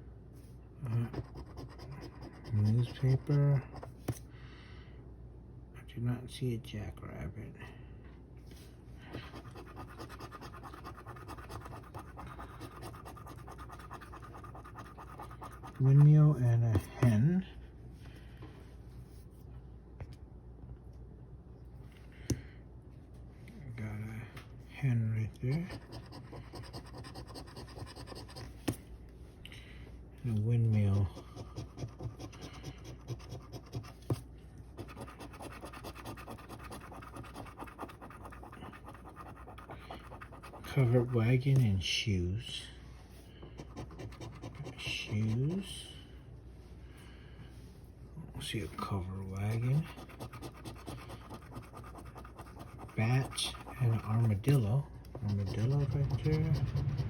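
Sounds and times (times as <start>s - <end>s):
lottery ticket being scratched: 9.3s - 16.2s, 25.5s - 28.5s, 34.8s - 41.7s, 43.6s - 45.8s, 49.2s - 57.0s.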